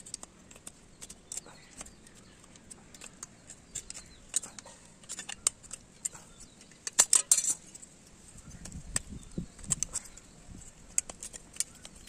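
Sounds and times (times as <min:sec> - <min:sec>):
small metal parts clinking: 0:02.9 - 0:07.9.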